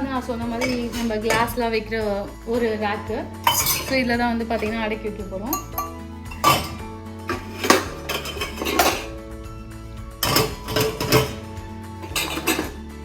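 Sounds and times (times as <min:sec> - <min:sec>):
background music: 0:00.0 - 0:13.0
dishes clinking in dishwasher rack: 0:00.5 - 0:01.6, 0:03.4 - 0:04.1, 0:05.5 - 0:09.1, 0:10.2 - 0:12.8.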